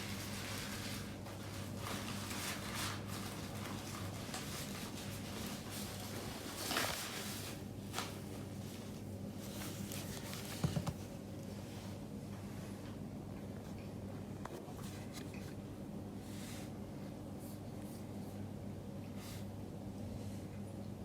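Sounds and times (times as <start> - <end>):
faint rustling and handling: 0.0 - 12.8.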